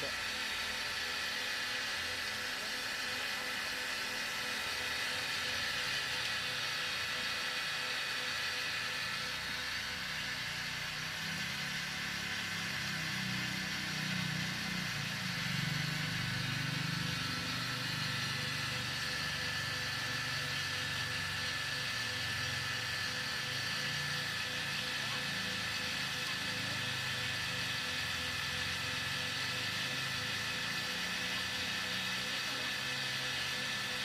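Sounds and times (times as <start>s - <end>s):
cotton candy machine whirring: 0.0s - 34.0s.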